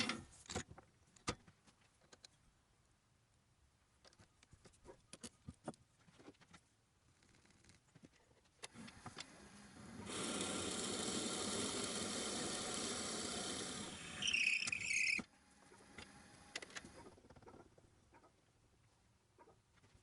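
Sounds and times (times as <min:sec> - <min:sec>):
drill bit boring into wood: 0:08.8 - 0:15.3
high squeal from cut: 0:14.0 - 0:15.3.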